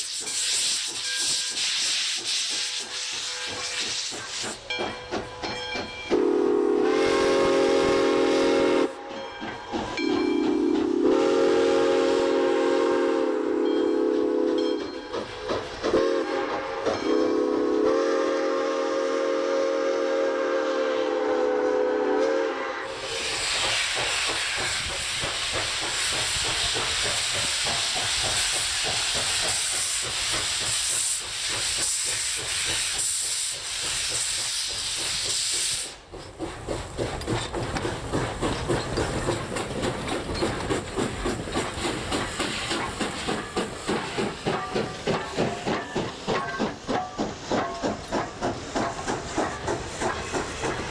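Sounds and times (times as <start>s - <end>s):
steam hissing: 0.0s - 50.9s
steam locomotive whistle: 6.1s - 9.2s, 10.0s - 14.9s, 15.9s - 23.5s.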